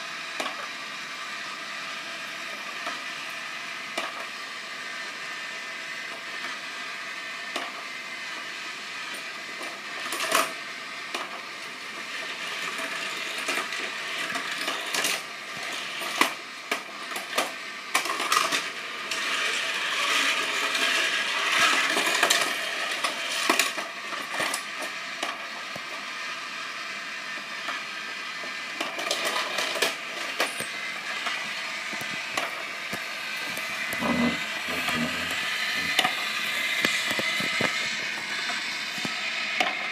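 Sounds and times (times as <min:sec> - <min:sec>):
toy cars rolling on plastic track: 0:00.2 - 0:39.9.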